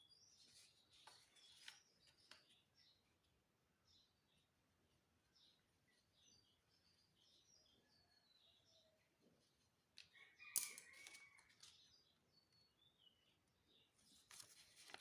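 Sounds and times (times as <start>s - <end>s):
faint birds chirping: 0.0s - 15.0s
paper crackling and rustling: 0.4s - 2.6s, 14.0s - 15.0s.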